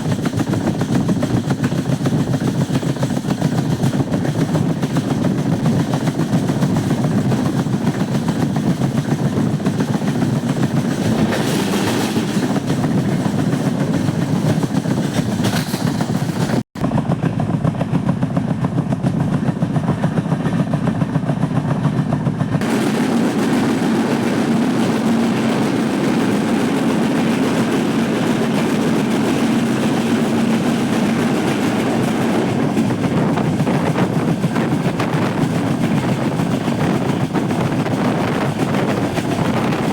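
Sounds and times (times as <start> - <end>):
train rumbling and rattling: 0.0 - 39.9.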